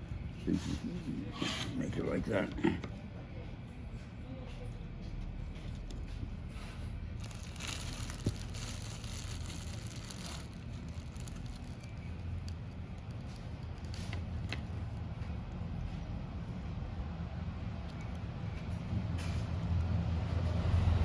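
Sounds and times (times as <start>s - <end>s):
palm leaf strips rustling: 7.2s - 14.7s.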